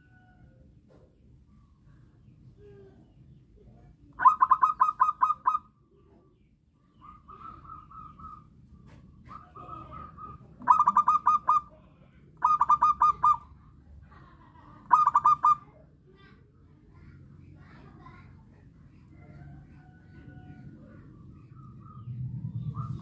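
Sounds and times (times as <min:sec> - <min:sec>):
dove cooing: 0:04.2 - 0:05.7, 0:09.2 - 0:11.7, 0:12.4 - 0:13.5, 0:14.9 - 0:15.6.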